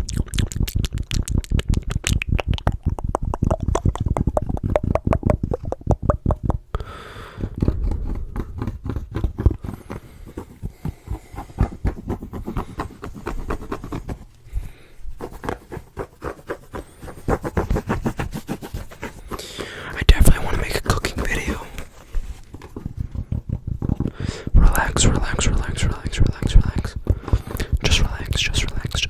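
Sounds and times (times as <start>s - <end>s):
fingertip tapping: 0.3s - 14.3s, 16.7s - 28.9s
scratching and rubbing: 7.4s - 29.0s.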